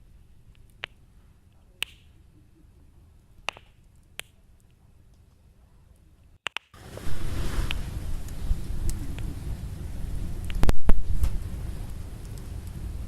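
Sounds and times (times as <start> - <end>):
burning wood popping: 0.0 - 13.0
low rush of flame: 6.8 - 13.0.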